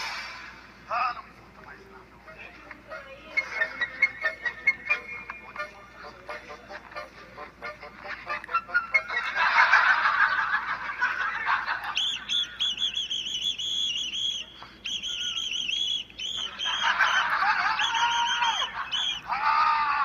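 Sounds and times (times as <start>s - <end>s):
toy whistle shrill toots: 11.9s - 19.3s.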